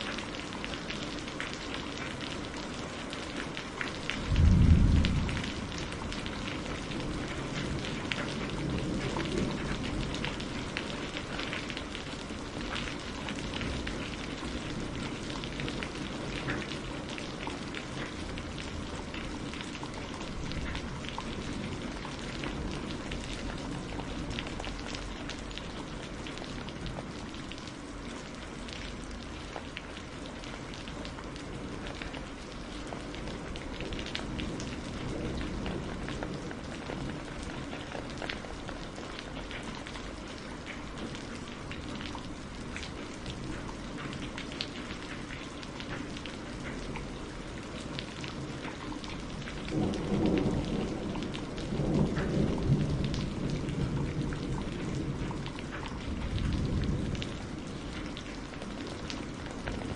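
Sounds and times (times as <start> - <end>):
raindrops ticking on a surface: 0.0 - 59.9
low thunder rumbling: 4.1 - 11.1, 49.5 - 58.5.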